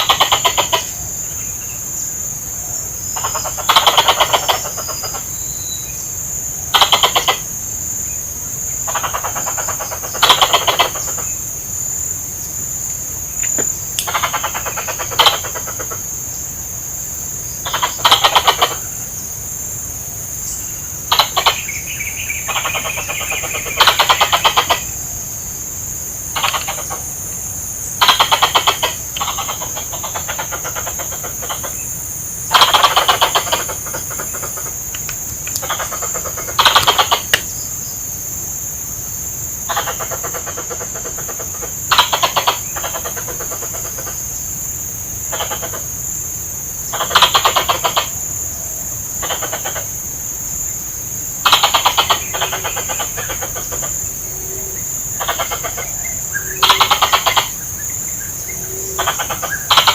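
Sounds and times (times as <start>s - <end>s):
squirrel chattering calls: 0.0s - 1.3s, 3.1s - 5.8s, 6.5s - 7.6s, 8.7s - 11.4s, 13.3s - 16.2s, 17.6s - 19.0s, 21.0s - 25.1s, 26.3s - 37.6s, 39.6s - 44.4s, 45.2s - 46.0s, 46.9s - 48.3s, 49.1s - 49.9s, 51.4s - 59.9s.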